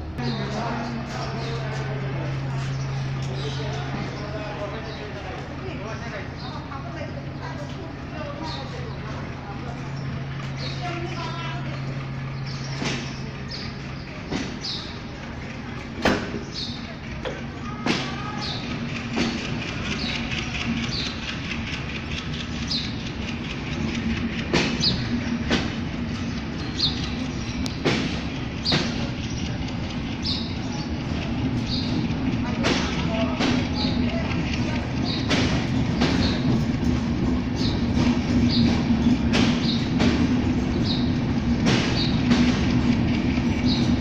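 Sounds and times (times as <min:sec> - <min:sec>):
train rumbling past: 0:00.0 - 0:44.0
wheels clacking over rail joints: 0:00.2 - 0:44.0.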